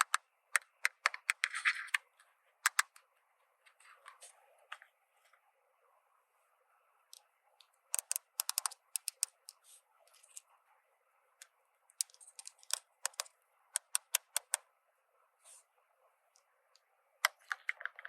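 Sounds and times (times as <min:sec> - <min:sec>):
plastic toy pieces clicking: 0:00.0 - 0:02.0, 0:02.7 - 0:02.9, 0:07.9 - 0:09.6, 0:12.0 - 0:14.6.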